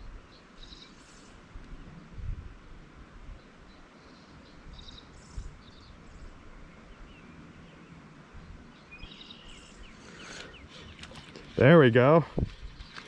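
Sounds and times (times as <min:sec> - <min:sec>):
background hiss: 0:00.0 - 0:13.0
faint bird chirps: 0:00.3 - 0:01.4, 0:03.3 - 0:11.6.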